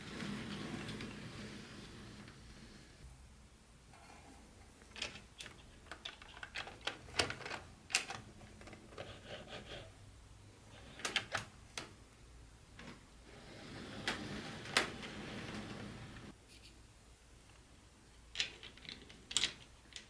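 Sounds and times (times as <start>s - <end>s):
plastic pieces clicking and tapping: 5.0s - 9.1s, 18.3s - 20.0s.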